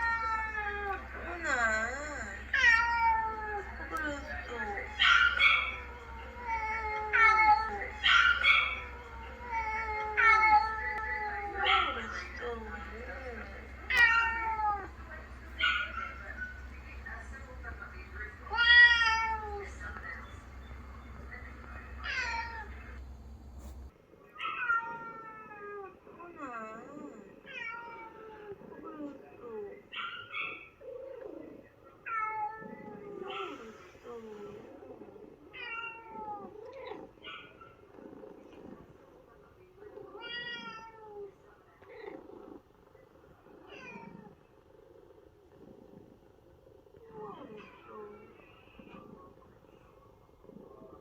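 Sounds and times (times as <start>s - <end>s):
cat meowing: 2.5s - 3.7s, 4.6s - 12.6s, 13.8s - 15.0s, 18.4s - 19.7s, 20.6s - 23.0s, 40.1s - 41.3s, 43.6s - 44.3s.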